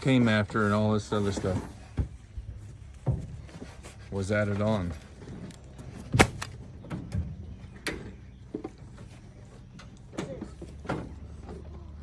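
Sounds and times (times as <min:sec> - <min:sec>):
sharp knocks and clunks: 0:01.3 - 0:03.8.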